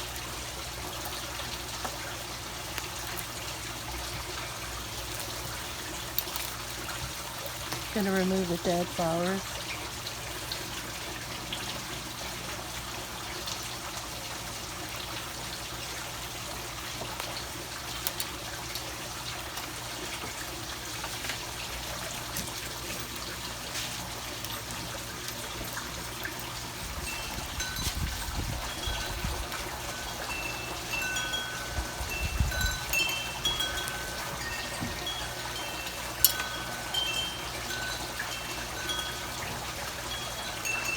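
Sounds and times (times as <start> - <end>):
wind chimes ringing: 7.9 - 9.5, 22.8 - 40.9
steady hiss: 26.5 - 40.9.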